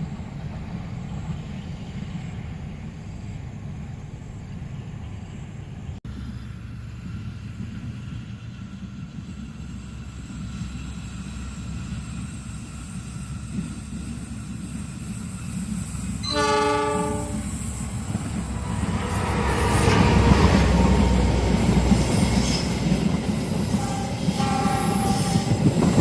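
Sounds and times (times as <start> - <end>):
train rumble: 0.0 - 26.0
train horn blast: 16.2 - 17.7, 23.7 - 25.6.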